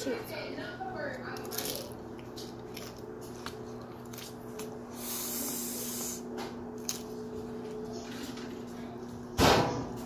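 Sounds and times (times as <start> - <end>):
chewing crunchy chips: 1.2 - 8.5
hiss: 5.0 - 6.2.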